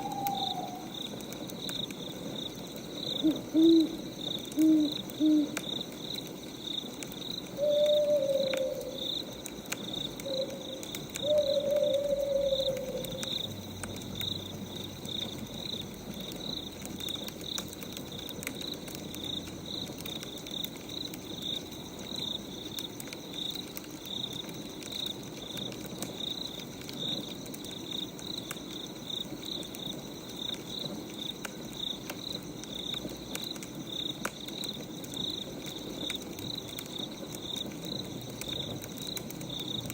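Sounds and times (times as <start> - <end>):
owl hooting: 0.0 - 0.9, 3.2 - 5.6, 7.6 - 9.0, 10.2 - 13.4
crickets chirping: 0.0 - 39.9
wood fire crackling: 0.0 - 39.9.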